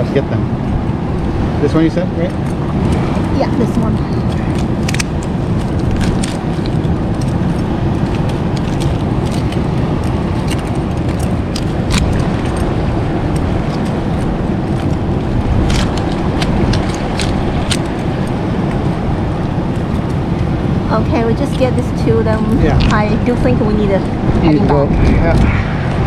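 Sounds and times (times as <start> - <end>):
wind buffeting microphone: 0.0 - 26.0
mussel shells clicking: 2.3 - 20.8.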